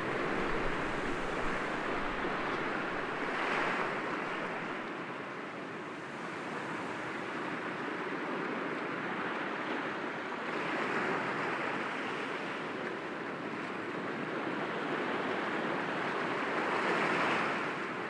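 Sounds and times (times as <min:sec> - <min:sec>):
sea waves breaking on rocks: 0:00.0 - 0:04.8.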